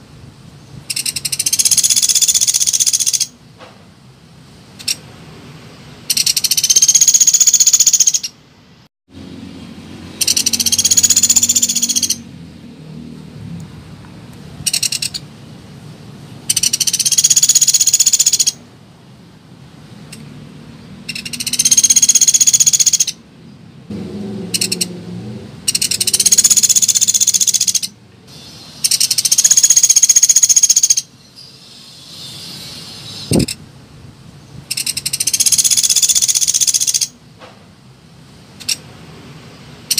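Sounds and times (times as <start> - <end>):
woodpecker rattling trill: 0.9 - 3.3, 6.1 - 8.4, 10.1 - 12.2, 14.7 - 15.2, 16.5 - 18.6, 21.1 - 23.2, 24.5 - 24.9, 25.7 - 28.0, 28.8 - 31.1, 34.7 - 37.2.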